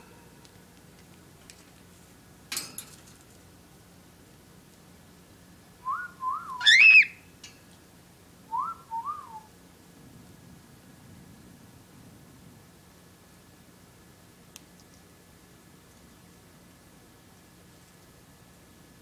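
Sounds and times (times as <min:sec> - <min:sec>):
pet bird whistling: 0:05.9 - 0:07.2.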